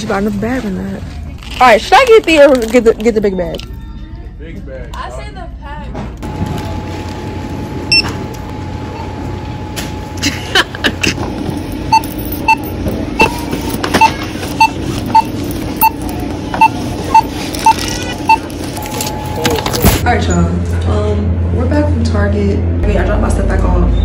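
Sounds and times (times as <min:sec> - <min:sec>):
store hum: 0:00.0 - 0:24.0
barcode scanner beeps: 0:07.9 - 0:08.2, 0:11.9 - 0:19.5.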